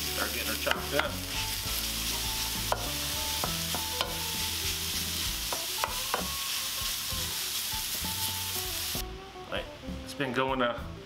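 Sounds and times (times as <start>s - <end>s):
meat sizzling in skillet: 0.0s - 9.1s
spoon knocking against pan: 2.7s - 4.2s, 5.5s - 6.3s.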